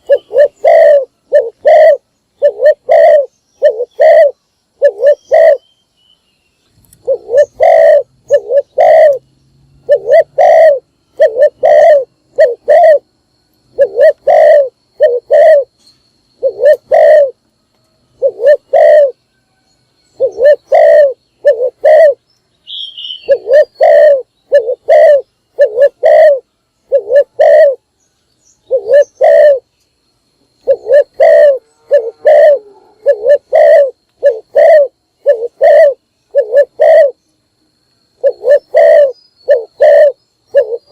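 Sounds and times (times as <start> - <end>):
dove cooing: 0.0 - 5.6, 7.0 - 9.2, 9.8 - 13.1, 13.8 - 15.8, 16.4 - 17.4, 18.2 - 19.2, 20.2 - 22.2, 23.1 - 27.8, 28.7 - 29.7, 30.6 - 37.2, 38.2 - 40.9
high bird chirp: 18.2 - 29.9.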